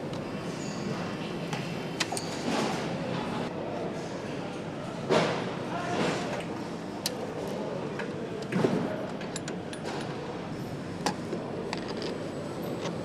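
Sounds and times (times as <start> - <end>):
factory background hum: 0.0 - 13.0.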